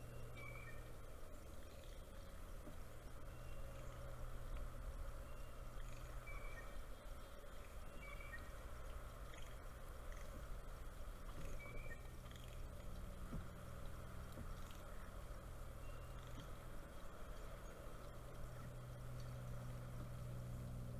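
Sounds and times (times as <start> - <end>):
faint bird chirps: 0.0 - 2.4, 3.1 - 4.2, 5.1 - 10.4, 11.3 - 12.8, 14.6 - 19.4
steady low hum: 0.0 - 20.9.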